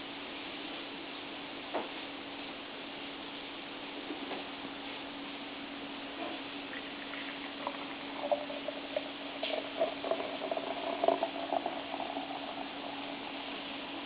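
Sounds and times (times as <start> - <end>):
ale glugging into a glass: 6.6 - 14.0.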